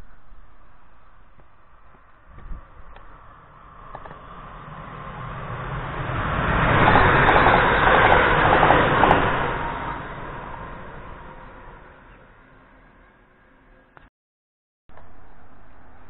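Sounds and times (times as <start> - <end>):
train passing at speed: 0.0 - 14.0
wheels clattering over rails: 3.8 - 10.7.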